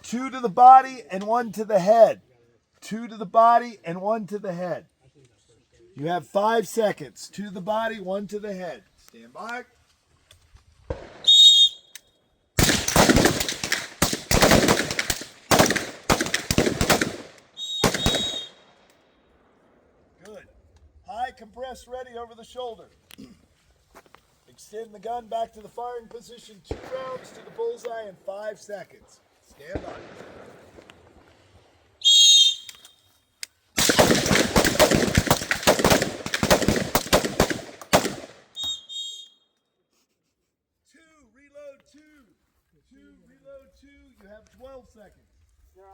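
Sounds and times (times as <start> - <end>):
rifles firing rapid shots: 12.6 - 18.6, 26.7 - 27.8, 29.7 - 30.8, 33.8 - 38.6.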